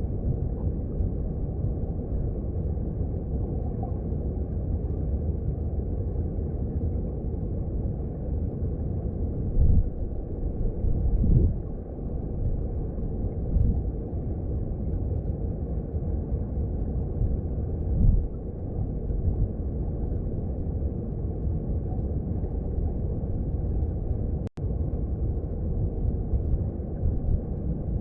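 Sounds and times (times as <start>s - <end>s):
stream heard underwater: 7.8s - 28.0s.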